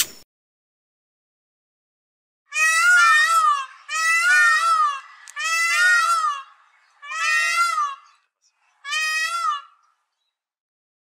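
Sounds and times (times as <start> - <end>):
bird long wavering calls: 2.5 - 10.4.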